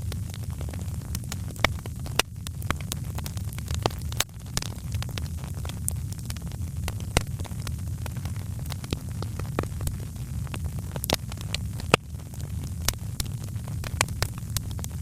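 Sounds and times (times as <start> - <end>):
fire pops and snaps: 0.0 - 15.0
wood fire crackling: 0.0 - 15.0.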